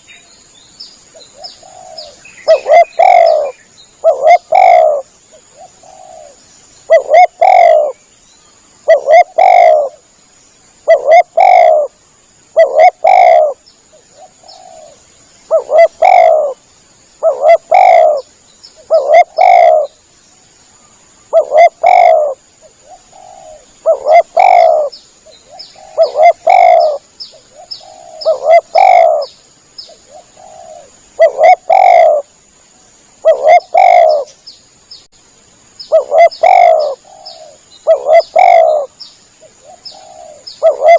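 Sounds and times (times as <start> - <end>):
dove cooing: 1.3 - 8.0, 8.8 - 10.0, 10.8 - 16.6, 17.2 - 20.0, 21.3 - 29.3, 30.1 - 32.3, 33.2 - 34.3, 35.9 - 40.9.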